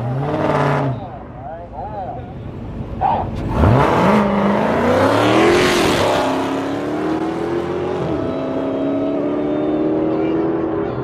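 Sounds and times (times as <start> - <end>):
car engine accelerating hard: 3.3 - 11.0.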